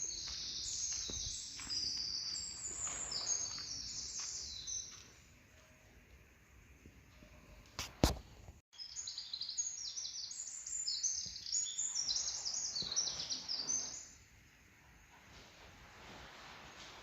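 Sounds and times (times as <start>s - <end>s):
small birds chirping: 0.0s - 5.4s, 8.8s - 14.3s.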